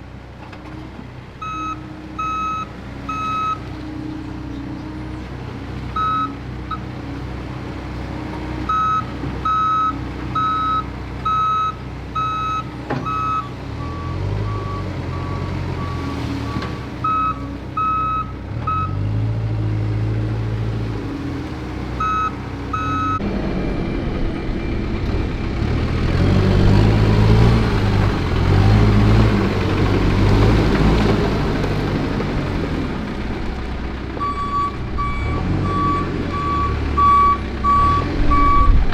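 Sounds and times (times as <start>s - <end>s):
diesel engine revving: 0.0s - 38.9s
reversing alarm beeps: 1.4s - 3.6s, 6.0s - 6.8s, 8.7s - 19.0s, 22.0s - 23.8s, 34.2s - 38.8s.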